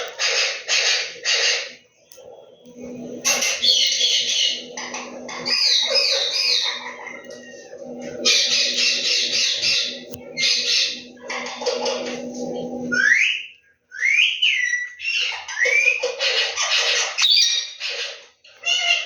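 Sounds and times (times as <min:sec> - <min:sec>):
parrot chattering and squawking: 0:00.0 - 0:01.8, 0:03.2 - 0:12.2, 0:14.5 - 0:19.0
steady low hum: 0:00.0 - 0:13.8.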